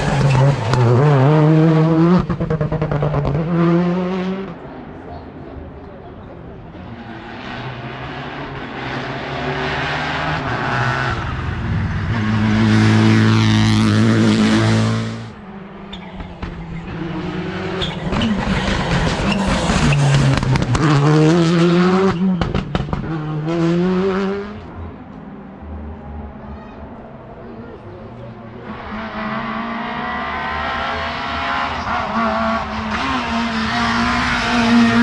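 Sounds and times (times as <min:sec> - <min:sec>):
rally car engine revving: 0:00.0 - 0:05.3, 0:06.2 - 0:35.0.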